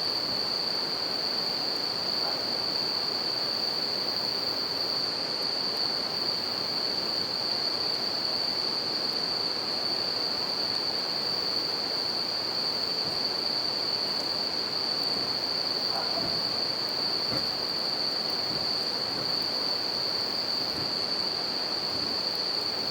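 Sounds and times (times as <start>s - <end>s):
crickets chirping: 0.0s - 22.9s
campfire crackling: 15.0s - 22.9s.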